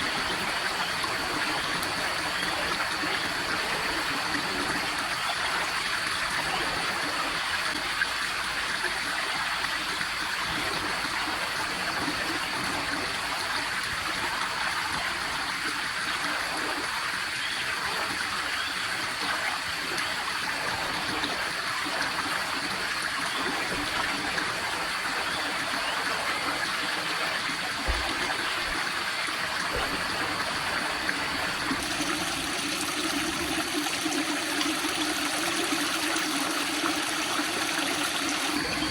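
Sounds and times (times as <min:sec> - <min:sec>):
stream water rushing: 0:19.9 - 0:38.9.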